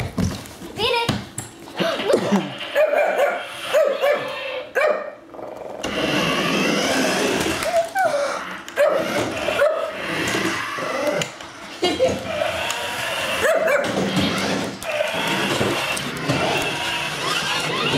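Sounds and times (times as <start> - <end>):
dog barking: 2.8 - 5.2, 8.8 - 10.0, 13.4 - 14.0
electric motor whirr: 5.6 - 11.6, 12.2 - 17.9.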